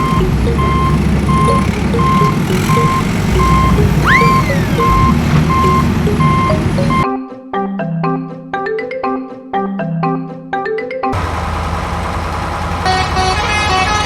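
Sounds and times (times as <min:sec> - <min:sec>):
low engine rumble: 0:00.0 - 0:07.0, 0:11.2 - 0:14.0
truck reversing alarm beeping: 0:00.0 - 0:07.0, 0:11.2 - 0:14.0
marimba music: 0:00.0 - 0:11.2
whistle-like swoop: 0:03.4 - 0:06.5.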